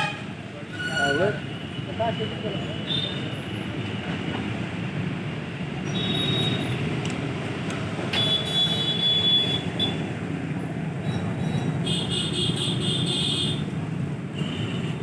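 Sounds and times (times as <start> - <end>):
high squeal: 0.7 - 1.4.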